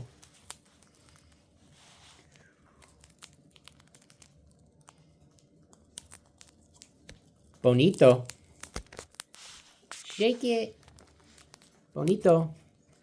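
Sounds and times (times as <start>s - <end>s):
beaks crunching popcorn: 0.0s - 13.0s.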